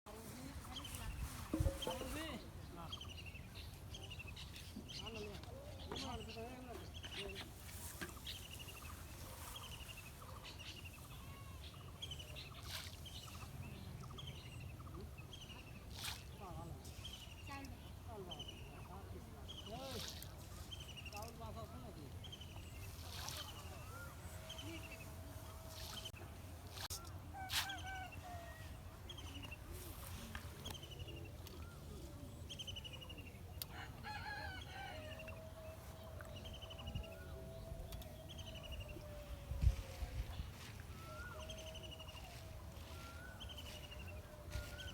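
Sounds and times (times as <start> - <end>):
birds chirping: 16.4 - 44.9.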